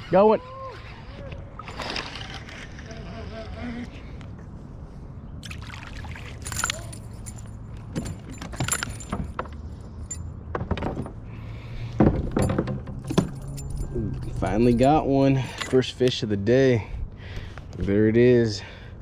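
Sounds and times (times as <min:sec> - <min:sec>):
metallic clinks and rattles: 0:06.4 - 0:11.2, 0:12.2 - 0:16.2.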